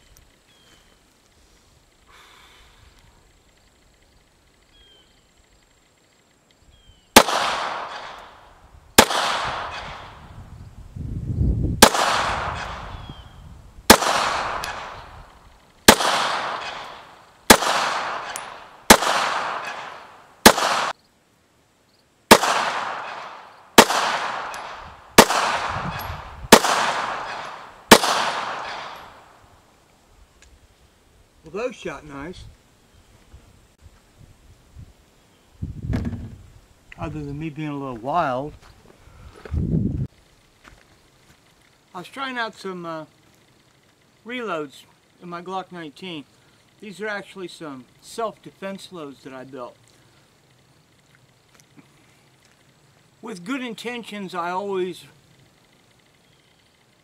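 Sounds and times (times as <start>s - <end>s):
pistol shots echoing: 7.2s - 8.4s, 9.0s - 10.2s, 11.8s - 13.0s, 13.9s - 15.2s, 15.9s - 21.0s, 22.3s - 29.4s.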